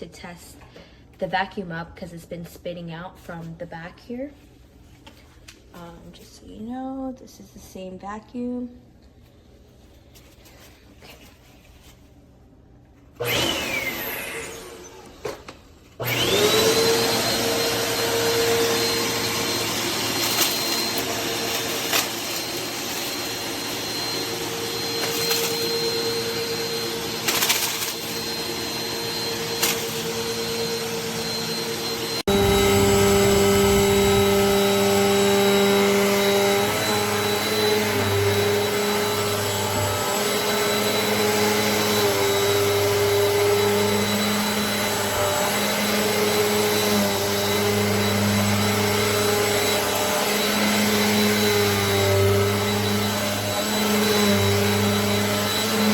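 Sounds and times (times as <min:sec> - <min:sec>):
vacuum cleaner motor whine: 0:13.1 - 0:55.9.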